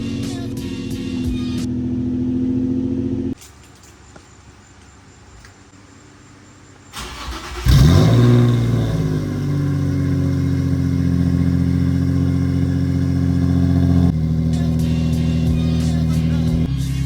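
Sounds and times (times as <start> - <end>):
car engine starting and idling: 0.0 - 3.4, 6.8 - 17.0.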